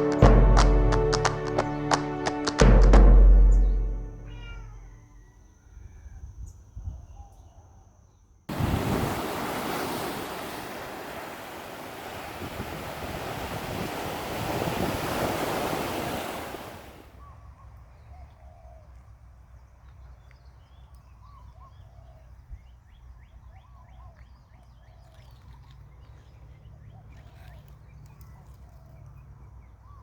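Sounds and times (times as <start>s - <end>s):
ocean surf rushing: 0.0s - 3.0s, 8.5s - 17.1s.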